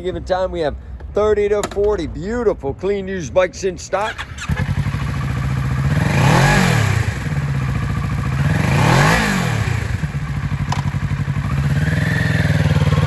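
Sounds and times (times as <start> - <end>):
motorcycle engine idling and revving: 4.0 - 13.0.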